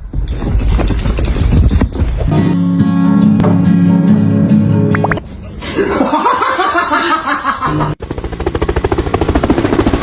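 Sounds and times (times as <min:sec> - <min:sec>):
music with pitched notes: 0:02.3 - 0:05.2
laughter: 0:05.5 - 0:08.0.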